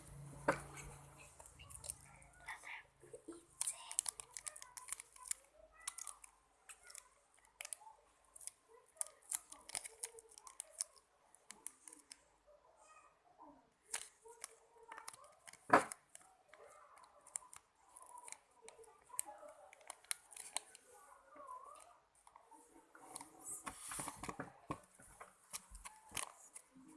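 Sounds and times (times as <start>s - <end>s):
plastic packaging crinkling: 3.5s - 7.8s, 8.4s - 12.2s, 17.3s - 20.8s.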